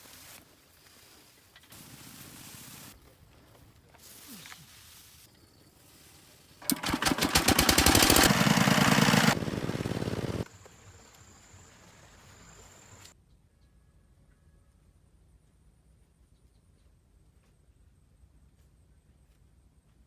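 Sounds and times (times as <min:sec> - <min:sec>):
small engine machine running: 0:06.6 - 0:11.0.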